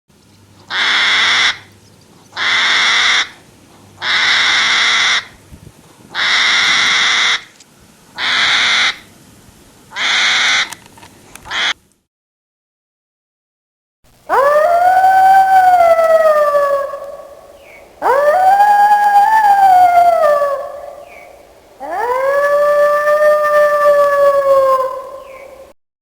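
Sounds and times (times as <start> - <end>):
animal giving harsh calls: 0.7 - 1.7, 2.4 - 3.4, 4.0 - 5.3, 6.2 - 7.5, 8.2 - 9.0, 9.9 - 10.8, 11.5 - 11.8, 14.3 - 25.7.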